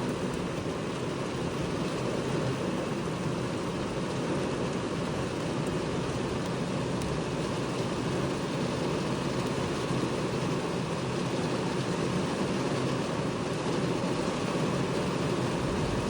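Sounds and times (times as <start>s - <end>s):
heavy rain in strong wind: 0.0s - 16.0s
low rumble: 15.6s - 16.0s.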